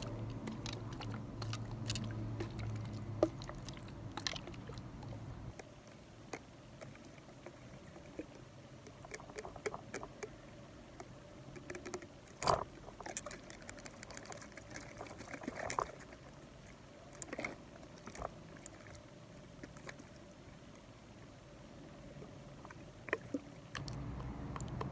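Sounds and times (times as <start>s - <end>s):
soft clicks and crackly taps: 22.6s - 24.9s.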